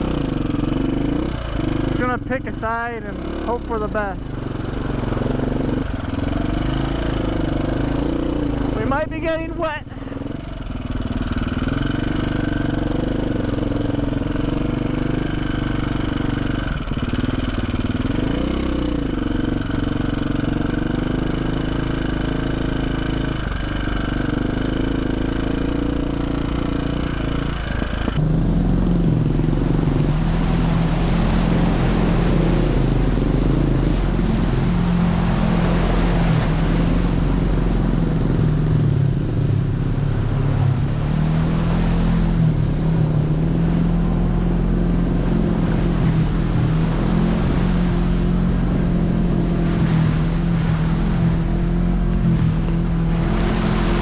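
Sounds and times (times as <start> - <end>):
dirt bike engine revving: 0.0 - 39.3, 40.0 - 54.0.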